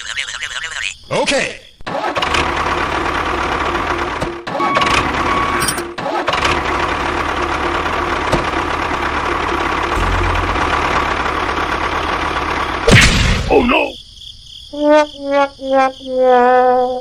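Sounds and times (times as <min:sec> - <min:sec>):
mini tractor engine running: 0:02.1 - 0:05.3, 0:06.1 - 0:12.8.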